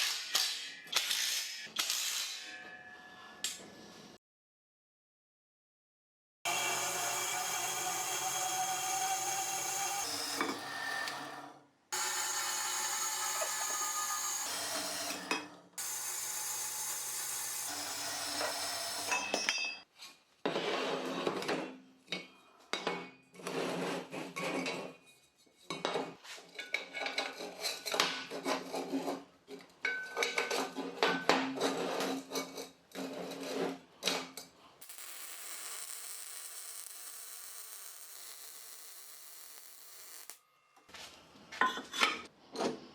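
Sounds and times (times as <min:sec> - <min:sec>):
machine running with held tone: 0:34.8 - 0:40.4.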